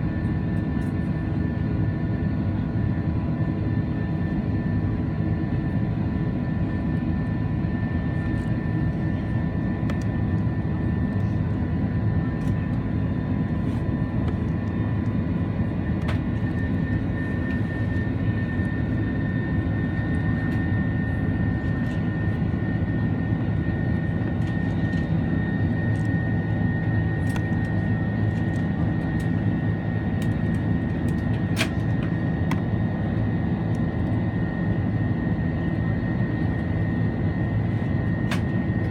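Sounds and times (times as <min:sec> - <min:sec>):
jet engine roar in cabin: 0:00.0 - 0:38.9.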